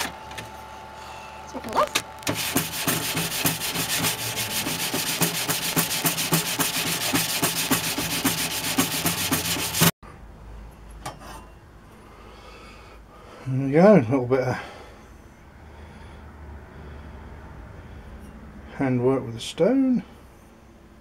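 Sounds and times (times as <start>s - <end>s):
stone rubbing on steel blade: 2.4s - 9.9s.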